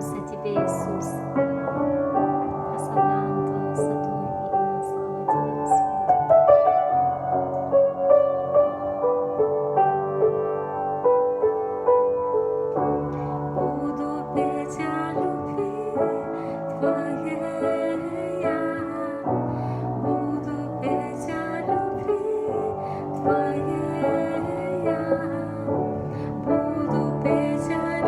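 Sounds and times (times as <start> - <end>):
piano playing slow chords: 0.0 - 28.0.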